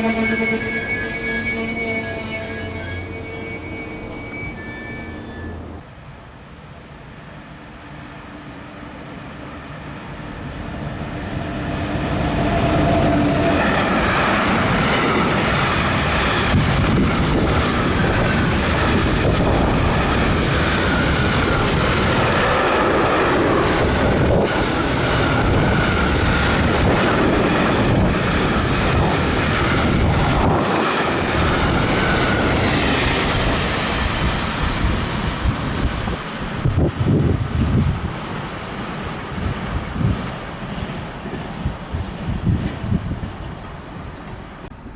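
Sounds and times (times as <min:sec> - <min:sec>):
high wheel squeal: 0:00.0 - 0:05.8
train wheels rumbling on rails: 0:07.0 - 0:44.9.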